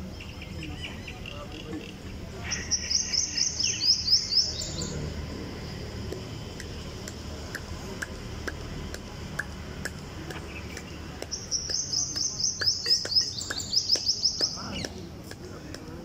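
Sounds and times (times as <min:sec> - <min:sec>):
bird chirping: 0:00.0 - 0:05.9, 0:10.3 - 0:15.1.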